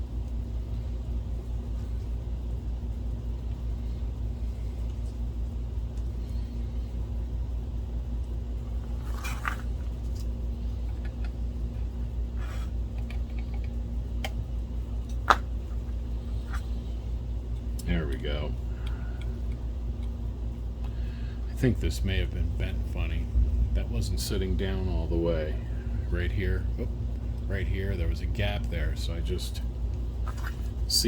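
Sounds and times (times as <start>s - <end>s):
steady low hum: 0.0s - 31.0s
small parts clicking and tapping: 12.9s - 14.4s.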